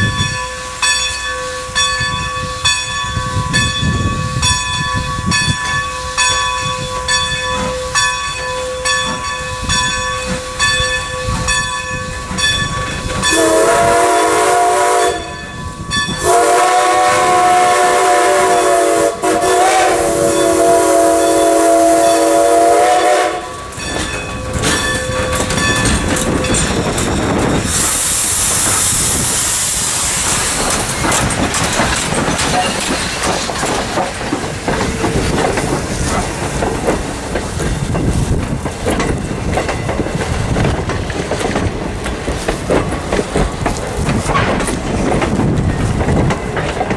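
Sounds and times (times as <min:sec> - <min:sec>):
locomotive bell ringing: 0:00.0 - 0:18.8, 0:19.4 - 0:27.7, 0:30.0 - 0:36.1
rumble of moving train: 0:00.0 - 0:46.9
steam whistle blasts: 0:13.3 - 0:15.5, 0:16.1 - 0:23.7
loud hiss of steam: 0:16.1 - 0:23.7, 0:26.3 - 0:33.5.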